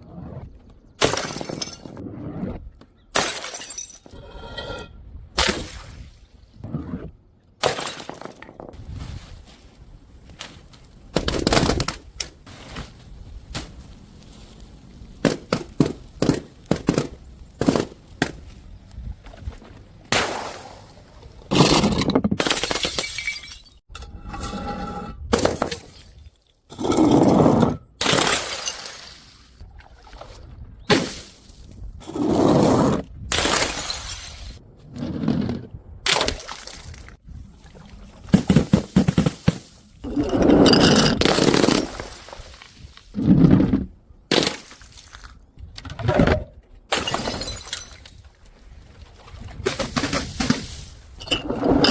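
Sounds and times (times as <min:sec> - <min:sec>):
glass bottles smashing: 0:01.0 - 0:02.0, 0:03.2 - 0:04.2, 0:21.6 - 0:23.8, 0:28.0 - 0:29.3, 0:33.4 - 0:34.5, 0:40.5 - 0:42.7, 0:46.9 - 0:48.2, 0:49.8 - 0:51.9.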